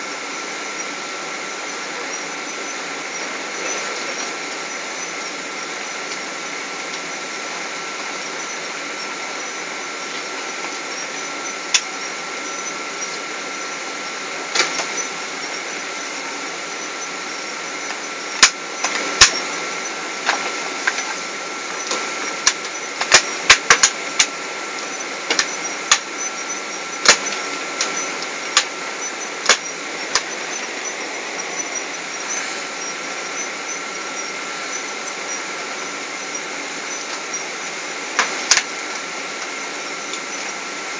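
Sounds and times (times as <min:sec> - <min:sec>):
airplane cabin engine noise: 0:00.0 - 0:40.9
thin steady whine: 0:00.0 - 0:40.9
sharp clicks and knocks: 0:14.5 - 0:15.1, 0:17.4 - 0:37.4, 0:38.2 - 0:40.5.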